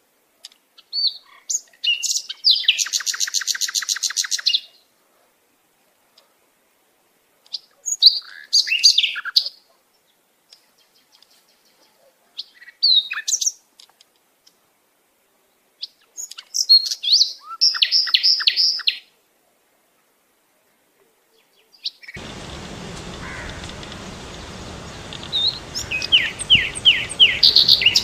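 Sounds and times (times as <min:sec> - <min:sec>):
bird singing: 0:22.2 - 0:28.0.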